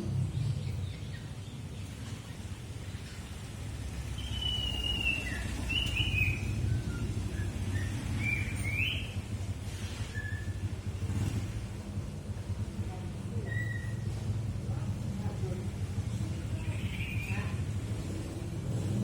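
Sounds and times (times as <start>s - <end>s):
bird whistling phrases: 4.2s - 9.2s, 10.1s - 10.6s, 13.4s - 14.0s.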